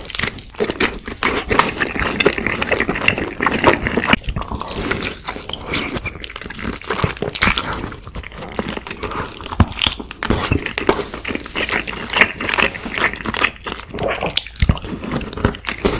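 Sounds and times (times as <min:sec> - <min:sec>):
crunching bites: 0:00.0 - 0:15.9
wet mouth clicks: 0:09.6 - 0:14.8.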